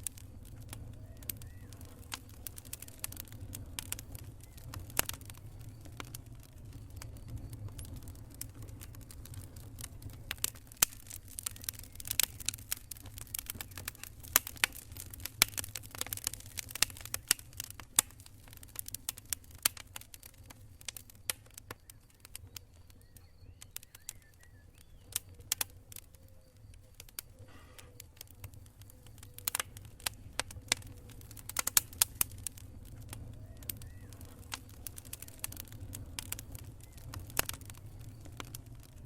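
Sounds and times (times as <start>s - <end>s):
campfire crackling and popping: 0.0s - 39.0s
low fire rumble: 0.0s - 39.0s.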